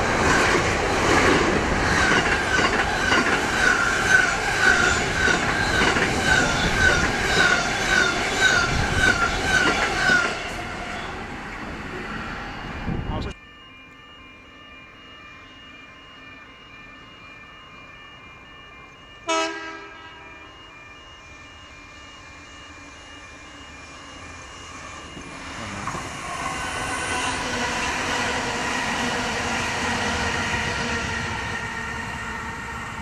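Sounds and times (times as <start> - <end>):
train wheels rushing on rail: 0.0 - 13.2
distant train horn blast: 19.2 - 20.9.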